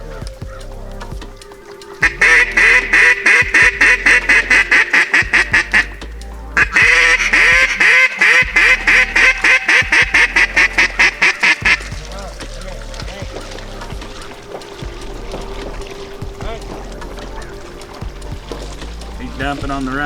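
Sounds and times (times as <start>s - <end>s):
duck call quacking: 2.0s - 6.0s, 6.6s - 12.1s.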